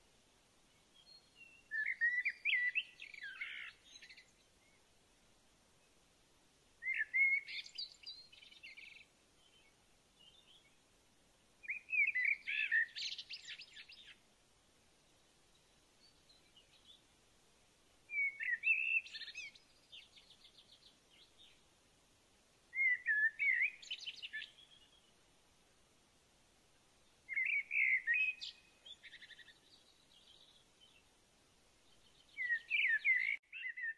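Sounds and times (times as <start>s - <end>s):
songbird chirping and warbling: 0.7s - 4.9s, 6.8s - 10.8s, 11.6s - 14.2s, 15.0s - 17.2s, 18.1s - 21.8s, 22.7s - 25.2s, 27.0s - 31.2s, 31.8s - 33.9s.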